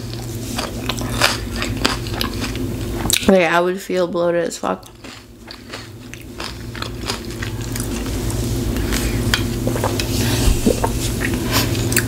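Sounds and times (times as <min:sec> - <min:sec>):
chewing clicks and crunches: 0:00.6 - 0:03.3, 0:04.8 - 0:08.0.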